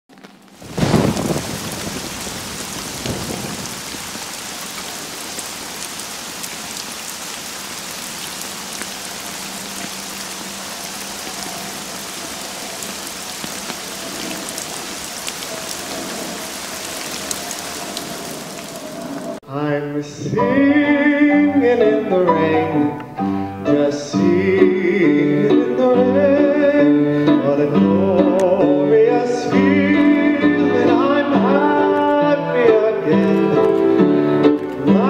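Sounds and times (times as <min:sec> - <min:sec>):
rain pattering: 0:00.1 - 0:19.4
low rumble of thunder: 0:00.6 - 0:04.2.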